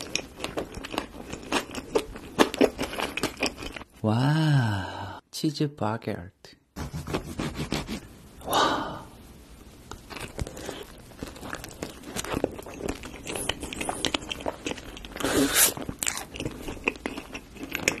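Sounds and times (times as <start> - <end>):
chewing crusty bread: 0.0 - 3.9, 9.9 - 18.0.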